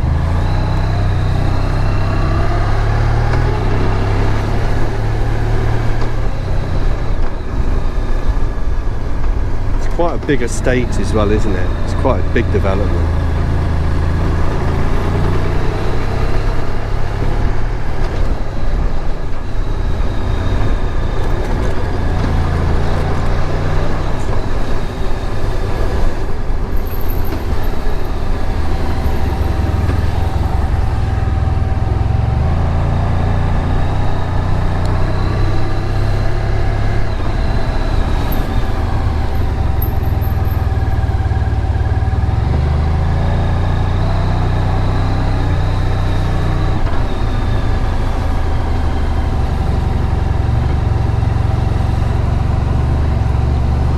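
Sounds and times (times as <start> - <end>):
wind and road noise: 0.0 - 53.9
motorcycle engine running: 10.0 - 44.2.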